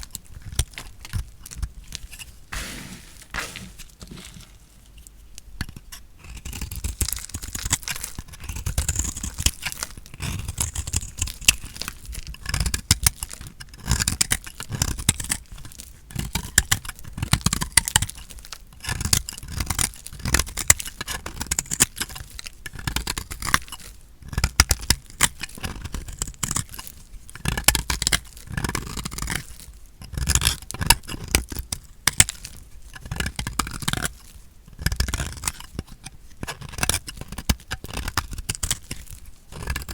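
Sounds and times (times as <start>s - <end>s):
knife cutting crunchy soap: 0.0s - 5.0s, 34.9s - 39.9s.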